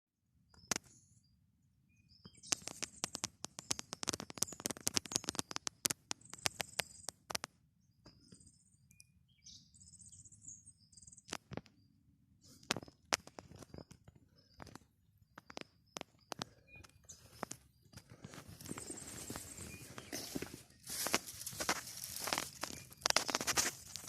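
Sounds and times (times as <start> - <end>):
small birds chirping: 0.4 - 24.0
sharp clicks and crackles: 2.2 - 8.2, 11.2 - 11.8, 12.4 - 24.0.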